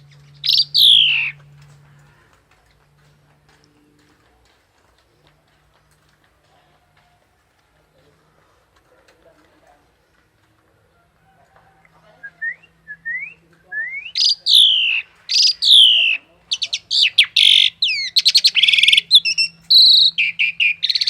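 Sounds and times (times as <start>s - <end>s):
songbird singing whistles and trills: 0.2s - 1.4s, 12.2s - 21.0s.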